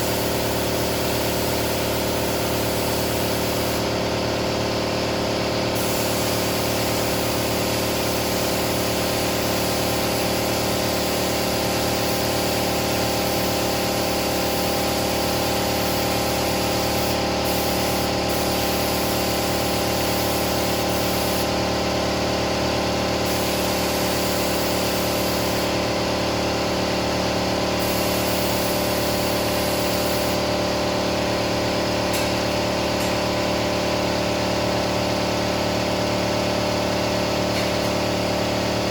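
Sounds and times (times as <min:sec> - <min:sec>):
spray gun hissing: 0:00.0 - 0:04.0, 0:05.7 - 0:21.6, 0:23.1 - 0:26.0, 0:27.7 - 0:30.6
air compressor humming: 0:00.0 - 0:38.9.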